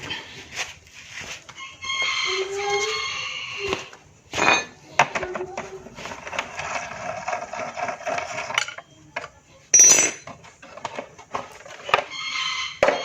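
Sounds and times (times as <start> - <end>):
metal tools clinking: 4.4 - 4.8, 8.3 - 8.9, 9.8 - 10.4.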